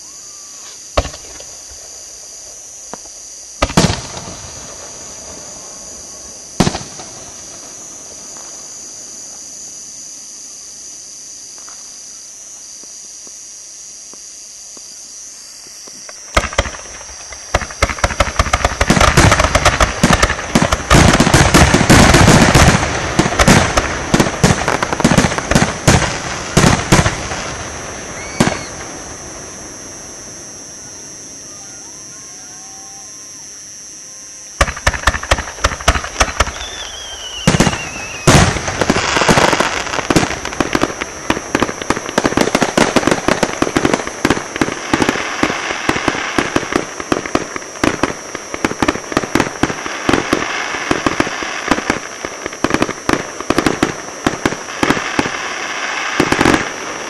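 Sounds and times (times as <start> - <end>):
fireworks crackling bangs: 0.6 - 9.5, 15.8 - 30.2, 34.6 - 57.0.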